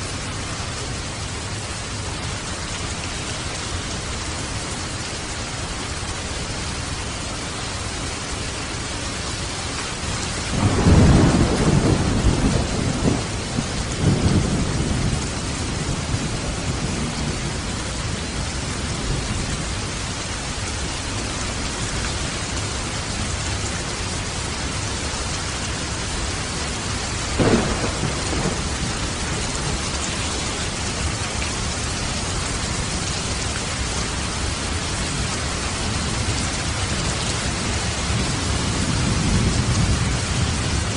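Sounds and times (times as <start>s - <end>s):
rain hissing: 0.0s - 40.9s
sharp thunderclap: 10.5s - 17.4s, 27.4s - 29.9s
rolling thunder: 10.5s - 19.7s, 26.1s - 40.9s.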